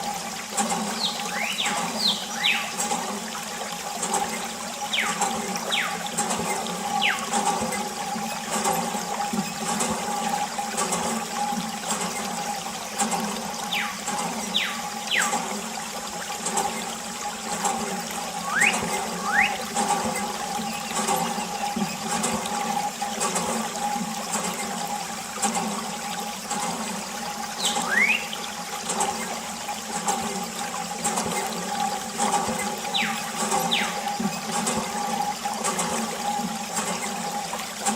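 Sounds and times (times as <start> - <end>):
water pump high hum: 0.0 - 37.9
water running and splashing: 0.0 - 37.9
short falling whistles: 18.4 - 19.6, 27.6 - 28.3.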